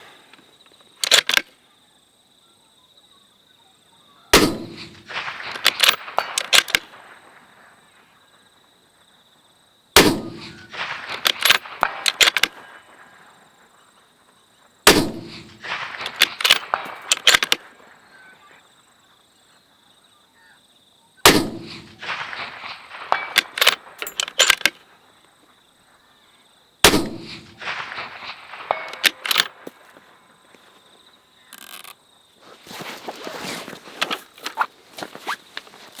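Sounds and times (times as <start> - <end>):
sharp metallic clicks and clangs: 1.0 - 1.5, 4.4 - 7.0, 10.1 - 12.6, 14.9 - 17.7, 21.3 - 24.8, 26.9 - 29.8
rifle shots: 4.3 - 7.8, 10.0 - 13.3, 14.8 - 18.0, 21.2 - 24.8, 26.8 - 30.3.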